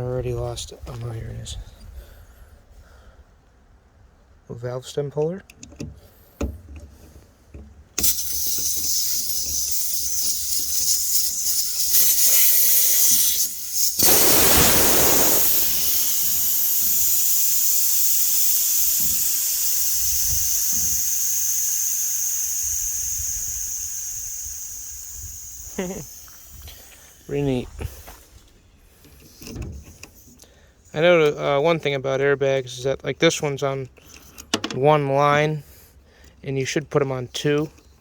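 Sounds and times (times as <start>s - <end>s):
compressed air hissing: 8.0s - 30.5s.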